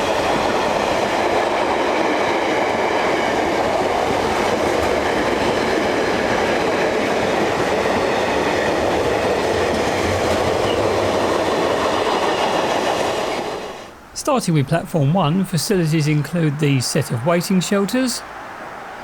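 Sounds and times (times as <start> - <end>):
freight train wheels rolling on rails: 0.0 - 14.1.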